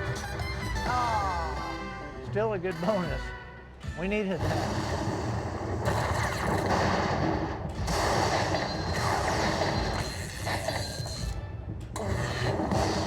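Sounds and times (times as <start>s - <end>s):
slot machine sound effects: 0.0s - 3.4s.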